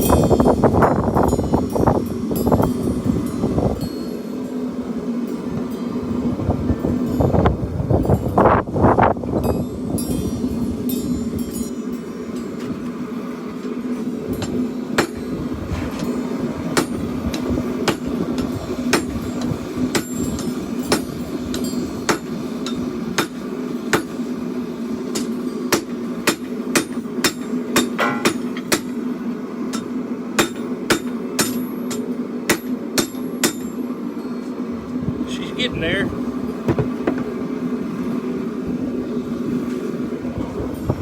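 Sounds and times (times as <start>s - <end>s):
steady low hum: 0.0s - 41.0s
hammer striking steel on anvil: 14.4s - 15.3s, 16.8s - 24.2s, 25.1s - 29.0s, 29.7s - 33.8s.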